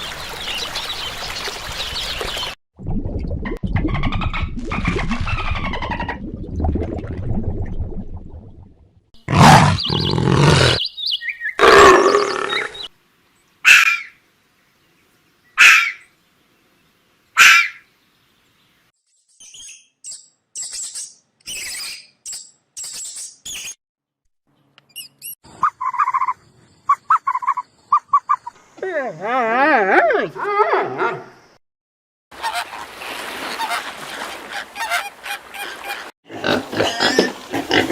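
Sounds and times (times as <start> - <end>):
wild animal calls: 9.3 - 10.8, 11.6 - 12.9.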